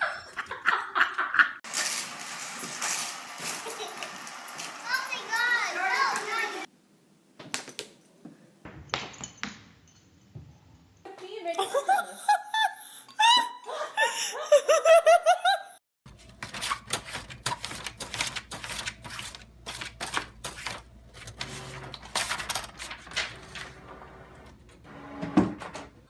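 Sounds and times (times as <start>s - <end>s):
high-pitched laughter: 11.5s - 15.8s.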